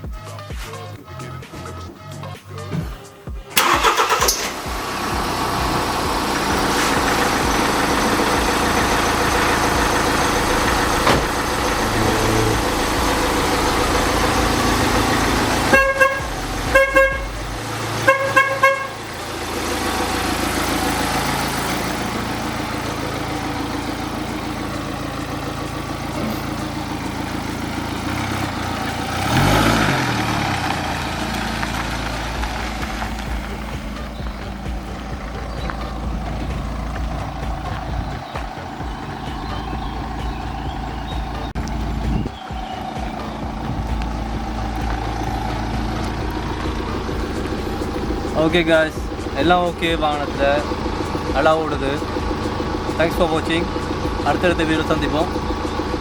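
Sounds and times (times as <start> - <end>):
diesel engine running: 0.0 - 56.0
car horn toots: 3.5 - 4.5, 5.4 - 24.6.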